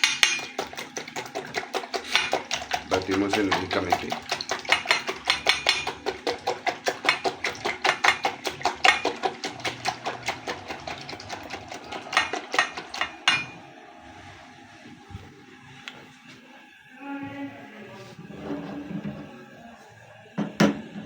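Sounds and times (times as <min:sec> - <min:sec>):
whisk clicking against bowl: 0:00.0 - 0:13.6.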